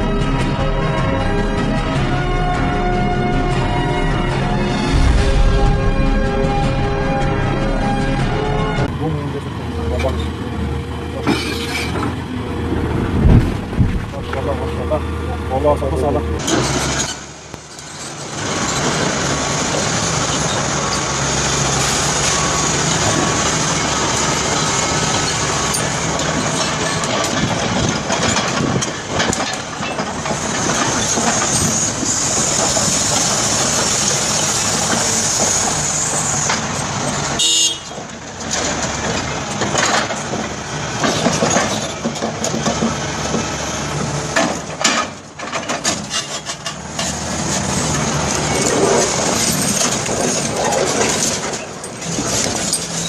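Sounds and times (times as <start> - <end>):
heavy diesel machinery engine: 0.0 - 53.0
grinding and scraping: 38.3 - 53.0.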